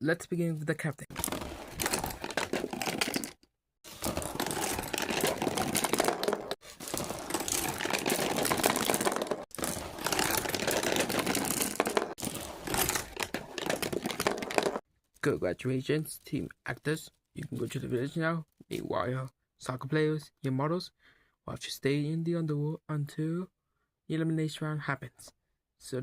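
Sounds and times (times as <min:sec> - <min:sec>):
crinkling rustling handling noise: 0:01.1 - 0:14.8.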